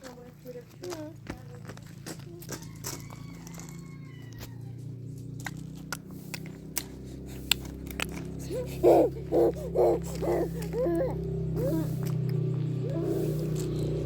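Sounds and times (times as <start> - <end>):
steady low hum: 4.8 - 14.0
animal calling: 6.1 - 14.0.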